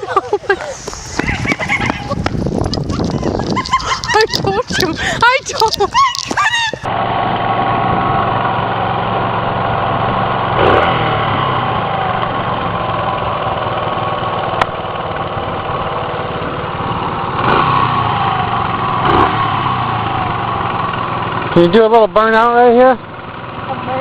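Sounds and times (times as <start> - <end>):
dirt bike engine idling: 6.8 - 24.0.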